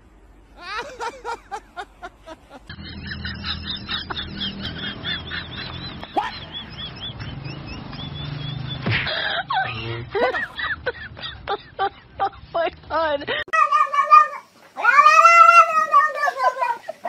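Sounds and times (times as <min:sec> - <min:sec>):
low hum: 0:00.0 - 0:13.4.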